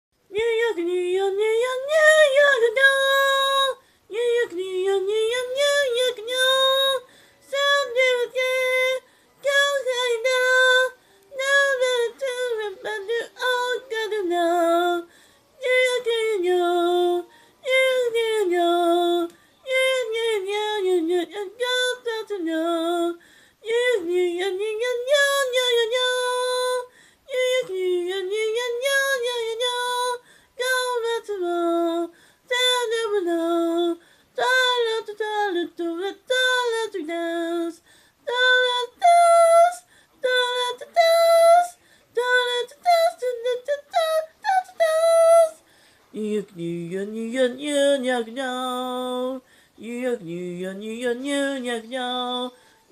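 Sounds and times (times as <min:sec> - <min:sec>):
woman singing unaccompanied: 0:00.2 - 0:52.9.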